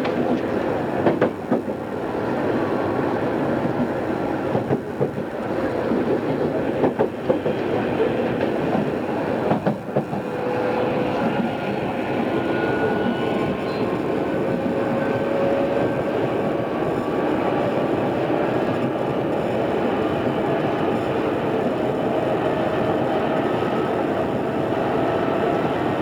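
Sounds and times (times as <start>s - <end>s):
rail-joint clacks: 0.0s - 2.0s, 3.6s - 22.2s
train wheels rumbling on rail: 0.0s - 26.0s.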